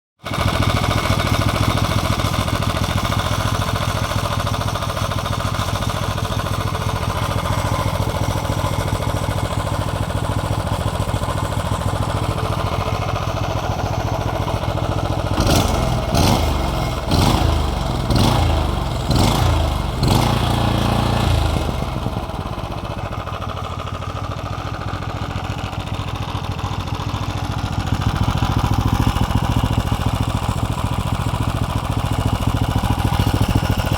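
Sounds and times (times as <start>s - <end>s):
small gasoline engine running: 0.2s - 33.9s
engine throttle blips: 4.1s - 23.8s.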